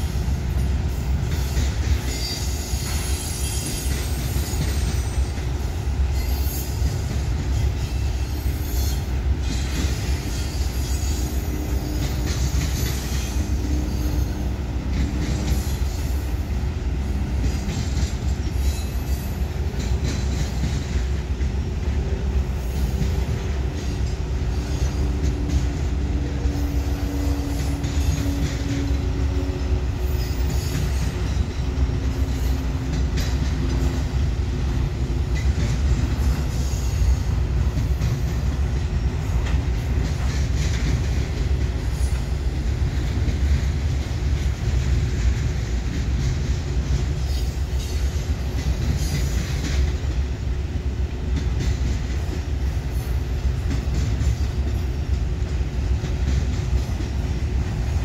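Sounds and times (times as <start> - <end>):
railroad cars clattering: 0.0 - 58.0
wheels rumbling on rail: 0.0 - 58.0.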